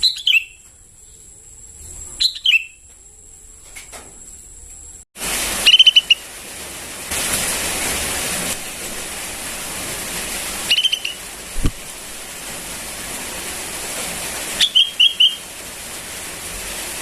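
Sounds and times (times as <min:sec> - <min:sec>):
bird chattering calls: 0:00.0 - 0:00.6, 0:02.2 - 0:02.8, 0:05.6 - 0:06.2, 0:10.6 - 0:11.2, 0:14.6 - 0:15.5
steady hiss: 0:00.0 - 0:17.0.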